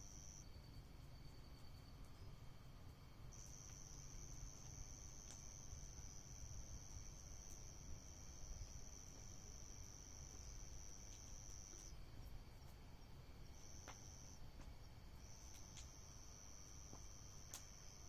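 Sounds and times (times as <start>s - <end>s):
cricket trilling: 0.0s - 18.0s
faint ticks: 3.4s - 12.0s, 13.5s - 18.0s.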